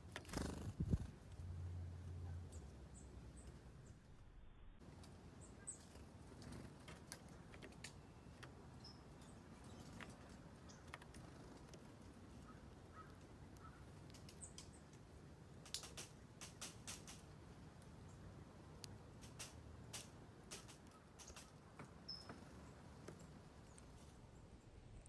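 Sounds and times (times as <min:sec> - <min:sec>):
small birds chipping: 0:00.0 - 0:25.0
faint clicks: 0:09.6 - 0:17.9.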